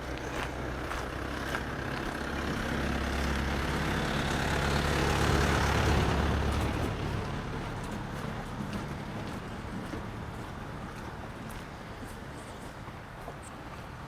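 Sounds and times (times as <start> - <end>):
vehicle driving past: 0.0 - 10.7.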